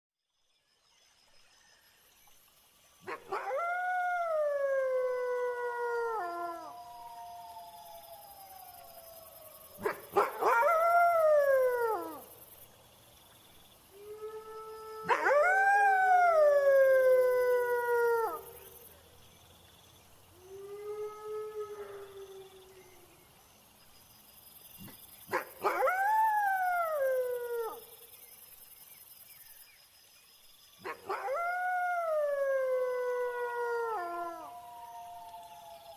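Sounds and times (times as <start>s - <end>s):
crickets: 0.3s - 35.9s
wolf howling: 14.0s - 18.6s, 30.9s - 35.9s.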